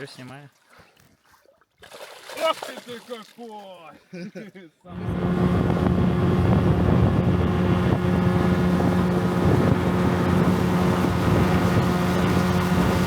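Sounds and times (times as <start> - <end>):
motorboat engine running: 4.9 - 13.0
wind buffeting microphone: 5.0 - 13.0.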